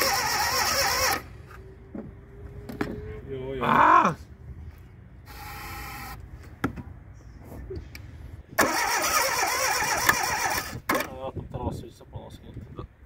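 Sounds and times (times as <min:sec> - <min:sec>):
engine cranking with starter: 0:00.0 - 0:01.4, 0:08.6 - 0:11.1.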